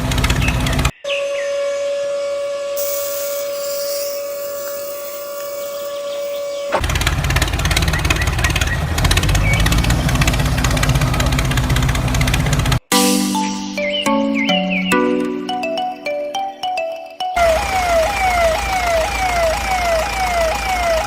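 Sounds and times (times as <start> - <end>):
steady whistle: 2.3 - 6.8
hiss: 2.8 - 6.8
pulsing engine-like noise: 17.4 - 21.0.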